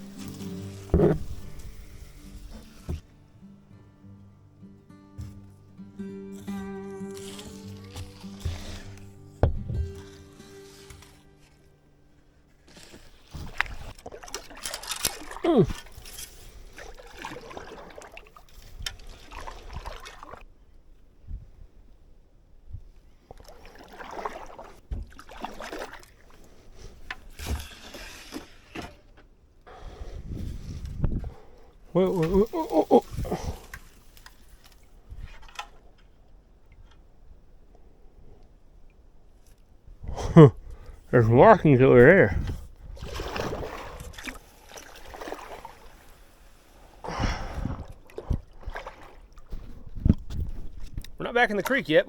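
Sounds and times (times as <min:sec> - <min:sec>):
paddle splashing in water: 0:12.7 - 0:20.4, 0:23.3 - 0:26.6, 0:42.8 - 0:50.8.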